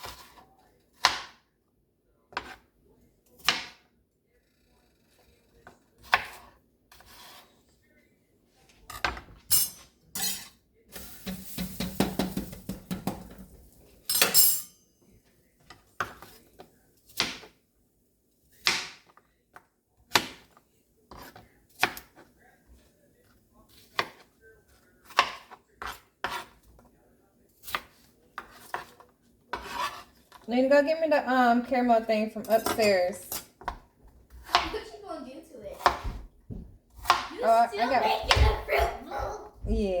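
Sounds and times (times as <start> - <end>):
knife chopping on cutting board: 0.0 - 1.4, 2.3 - 2.6, 6.0 - 7.5, 11.3 - 13.5, 16.0 - 17.6, 20.1 - 22.3, 23.7 - 26.9, 27.6 - 30.4, 33.6 - 34.8, 35.7 - 37.4.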